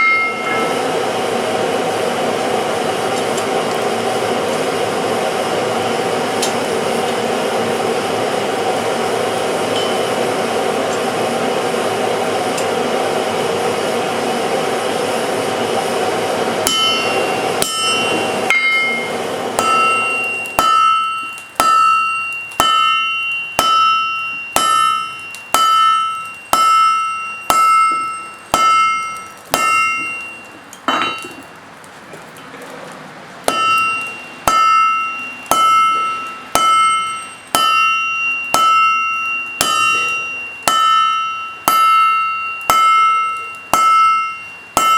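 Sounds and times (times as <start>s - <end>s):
hammer ringing on anvil: 0.0s - 0.8s, 9.7s - 10.3s, 16.6s - 31.5s, 33.5s - 44.9s.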